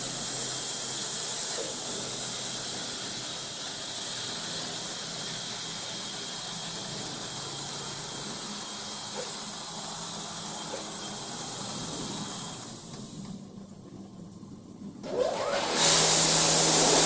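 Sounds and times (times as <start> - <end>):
car wash spray hissing: 0.0 - 13.3.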